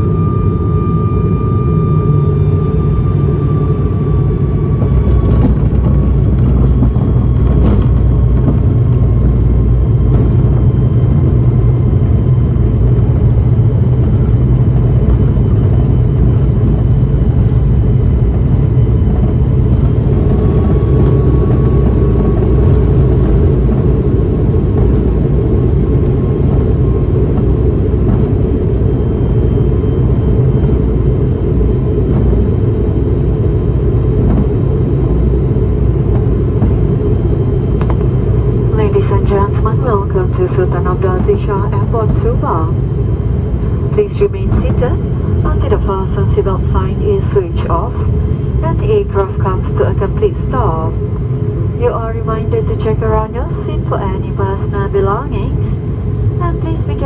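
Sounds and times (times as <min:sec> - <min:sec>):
faint high whines: 0:00.0 - 0:07.4
propeller engines rumbling: 0:00.0 - 0:57.0.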